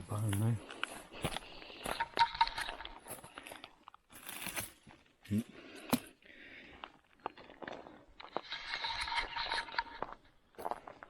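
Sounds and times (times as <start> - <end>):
twigs snapping: 4.1 - 4.8
footsteps on dry leaves: 4.1 - 4.9.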